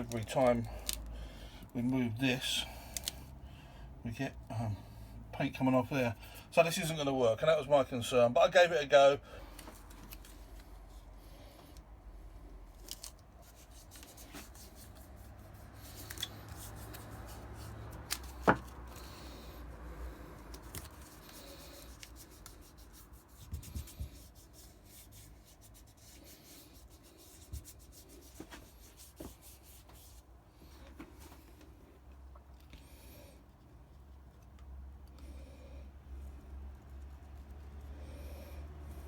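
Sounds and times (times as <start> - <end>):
light rubbing and scraping: 12.8 - 19.6, 20.5 - 31.8.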